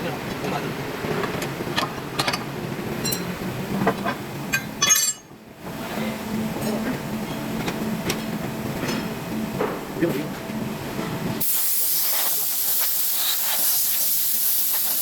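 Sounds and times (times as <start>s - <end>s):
steady machine hum: 0.0s - 11.5s
metal parts clinking: 4.5s - 5.3s.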